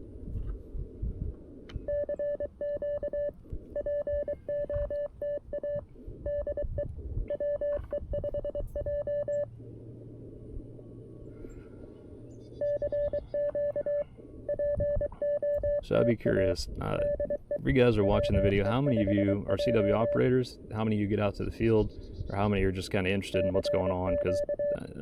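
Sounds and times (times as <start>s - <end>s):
morse code tone: 1.9s - 9.5s, 12.6s - 16.2s, 16.9s - 20.3s, 23.3s - 24.8s
radio band noise hiss: 15.2s - 25.0s.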